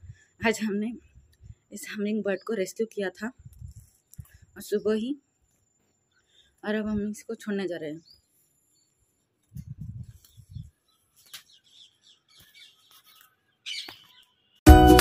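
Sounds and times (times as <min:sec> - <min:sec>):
small bird chirps: 0:07.9 - 0:14.6.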